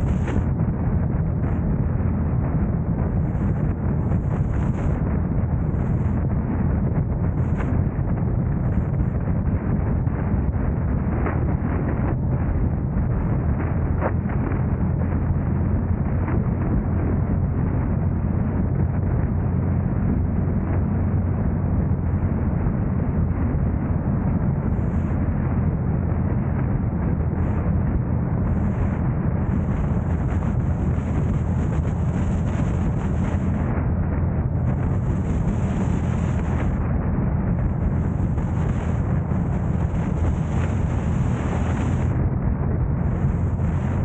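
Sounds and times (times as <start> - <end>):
car road noise: 0.0 - 6.3, 18.9 - 44.0
wind buffeting microphone: 0.0 - 44.0.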